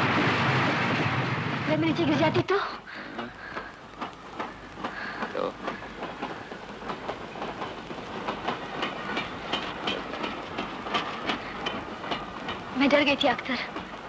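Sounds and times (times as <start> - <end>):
train rattling on rails: 0.0 - 14.0
wheels clacking over rail joints: 3.1 - 14.0.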